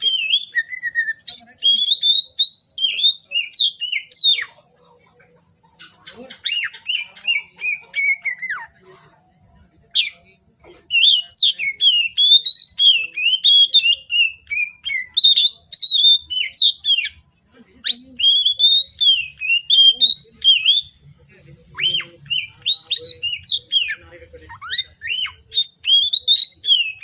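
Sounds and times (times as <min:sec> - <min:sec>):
bird singing whistled phrases: 0:00.0 - 0:04.7, 0:06.4 - 0:08.8, 0:09.9 - 0:17.2, 0:17.8 - 0:21.0, 0:21.7 - 0:27.0.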